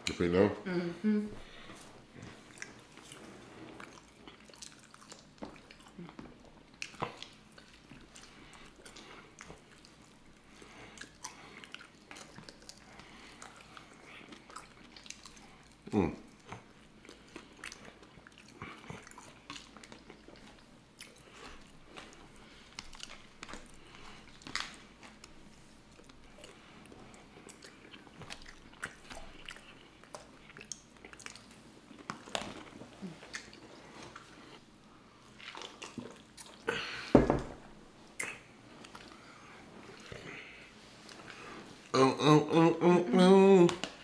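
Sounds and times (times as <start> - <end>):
people chewing and biting: 2.1 - 37.1.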